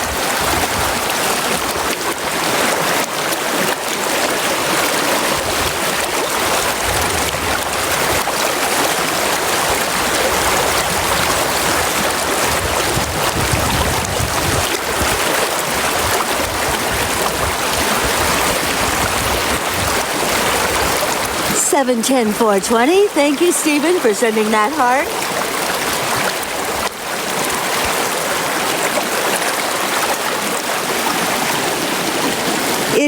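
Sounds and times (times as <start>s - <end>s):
brook water rushing: 0.0s - 33.0s.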